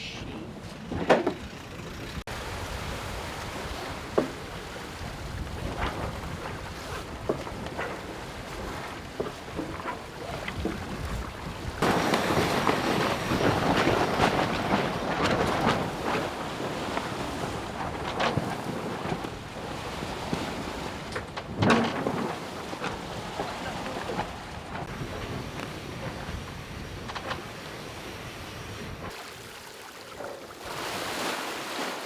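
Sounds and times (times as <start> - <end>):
wind: 0.0 - 32.0
water rushing: 2.2 - 21.2, 27.3 - 32.0.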